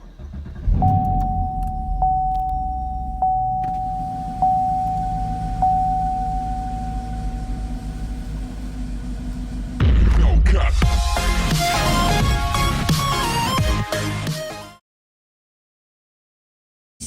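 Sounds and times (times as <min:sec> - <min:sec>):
car engine idling: 0:00.0 - 0:13.3
car warning chime dinging: 0:00.7 - 0:09.7.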